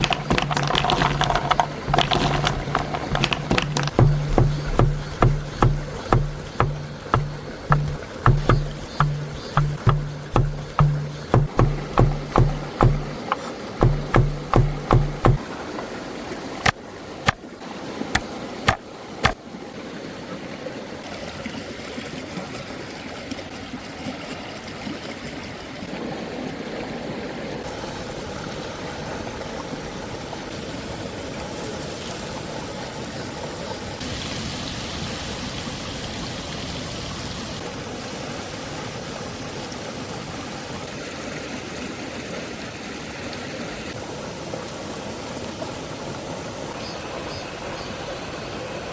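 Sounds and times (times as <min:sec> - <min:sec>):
sharp clicks: 0:00.0 - 0:15.4.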